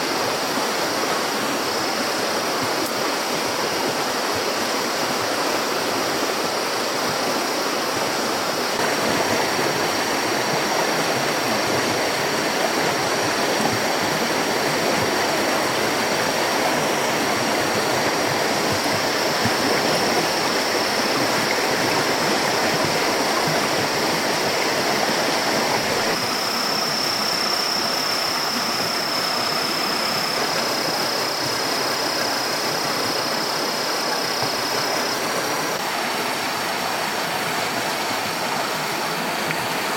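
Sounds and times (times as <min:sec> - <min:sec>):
rushing water: 0:00.0 - 0:39.9
high-pitched whine: 0:08.6 - 0:35.9.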